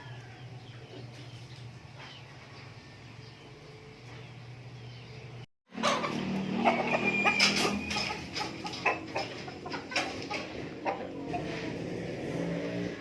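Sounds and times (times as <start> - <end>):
chickens clucking: 5.7 - 13.0.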